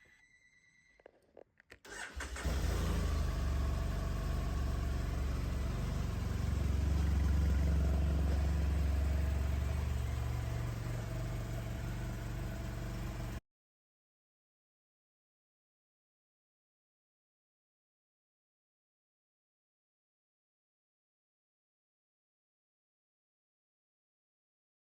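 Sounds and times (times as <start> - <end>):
motorcycle engine starting and idling: 1.9 - 13.4.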